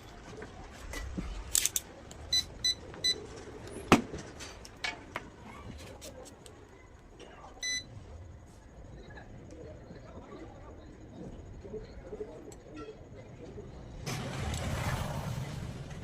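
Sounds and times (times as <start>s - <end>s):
short electronic beeps: 7.6s - 7.9s.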